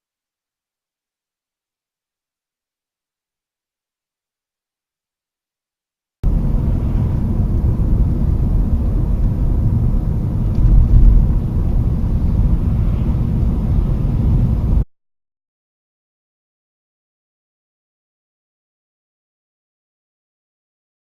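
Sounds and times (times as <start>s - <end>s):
car road and engine rumble: 6.2s - 14.8s.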